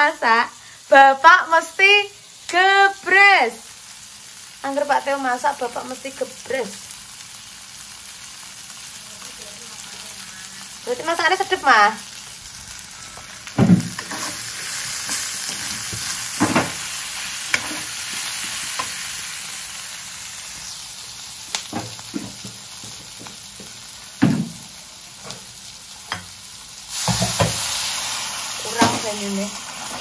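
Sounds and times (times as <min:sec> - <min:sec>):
food sizzling in a pan: 0:00.0 - 0:30.0
spatula scraping a pan: 0:13.9 - 0:16.8, 0:17.4 - 0:19.0.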